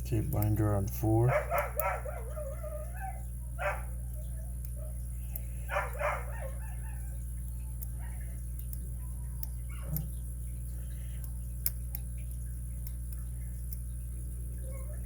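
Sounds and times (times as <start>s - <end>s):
dog yipping: 1.3s - 5.0s, 5.7s - 7.2s, 9.0s - 10.1s, 14.6s - 15.0s
dog whining: 1.5s - 5.0s.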